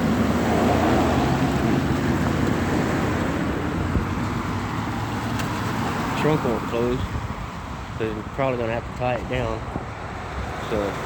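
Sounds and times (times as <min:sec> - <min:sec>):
vehicle engine hum: 0:00.0 - 0:11.0
wind on microphone: 0:00.0 - 0:11.0.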